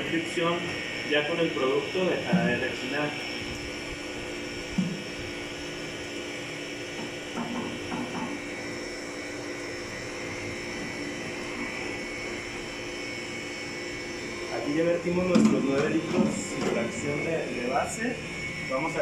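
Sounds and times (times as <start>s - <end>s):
ice cream freezer humming: 0.0s - 19.0s
high whining squeal: 10.2s - 19.0s.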